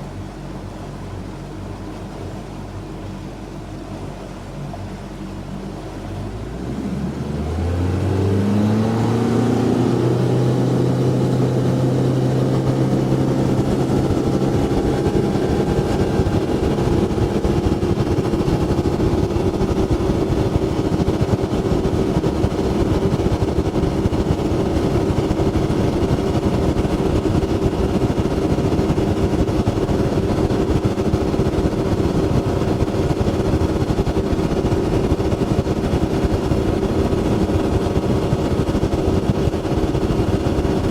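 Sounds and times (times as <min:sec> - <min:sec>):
boat motor speeding up: 0:00.0 - 0:40.9.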